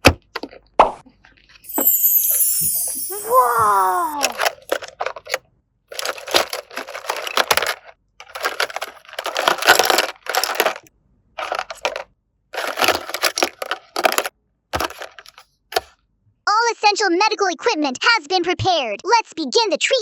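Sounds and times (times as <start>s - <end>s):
small toy pieces clattering: 1.7s - 15.4s
packaging crinkling and rustling: 4.2s - 12.0s, 12.6s - 15.9s.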